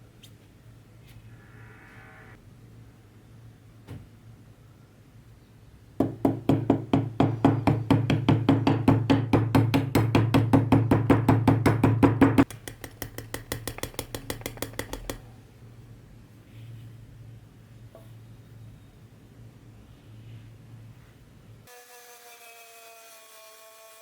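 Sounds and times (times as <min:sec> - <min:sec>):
steady low hum: 0:00.0 - 0:03.7.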